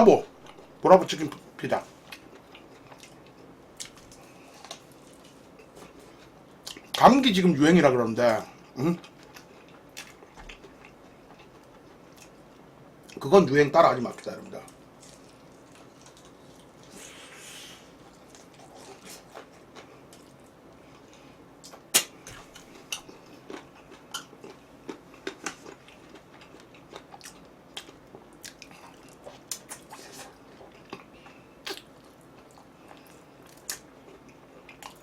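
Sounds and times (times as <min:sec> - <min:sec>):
person chewing crunchy food: 0:02.0 - 0:06.9, 0:08.6 - 0:13.2, 0:15.0 - 0:35.0
mouth smacks: 0:31.6 - 0:31.9.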